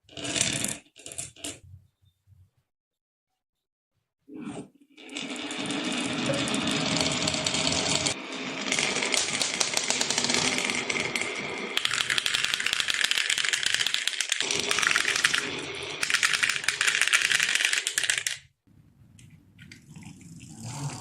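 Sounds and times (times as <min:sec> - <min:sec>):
marbles rattling down a track: 0:05.1 - 0:18.5.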